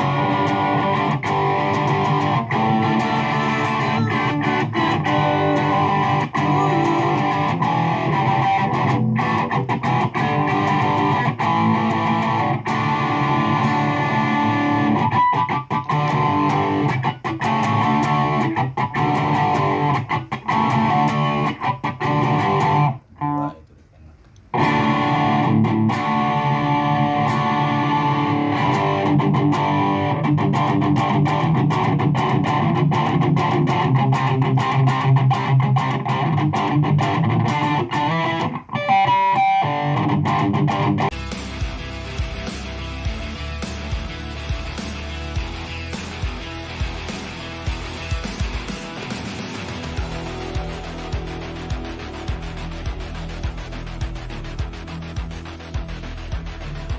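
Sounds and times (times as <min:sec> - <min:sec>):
electric guitar playing: 0:00.0 - 0:23.6, 0:24.5 - 0:56.9.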